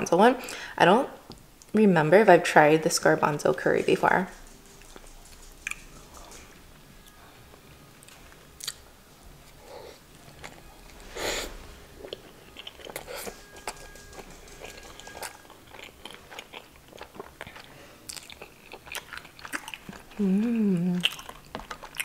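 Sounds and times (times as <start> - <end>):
wet chewing mouth sounds: 12.0 - 22.0
short hummed vocal sound: 20.2 - 21.0.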